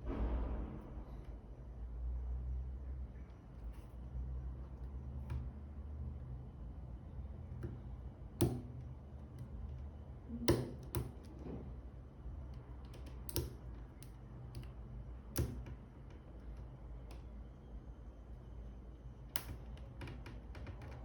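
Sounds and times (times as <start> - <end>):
low steady hum: 0.0 - 21.0
clicks and taps of small parts: 12.5 - 17.3, 19.3 - 21.0.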